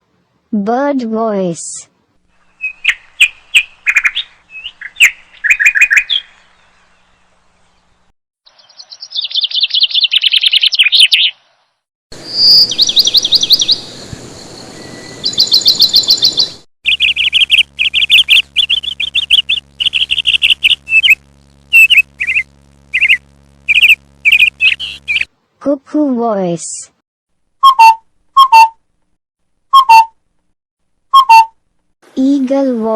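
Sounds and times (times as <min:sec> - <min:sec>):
birds chirping and trilling: 0:02.4 - 0:11.6, 0:12.2 - 0:25.3.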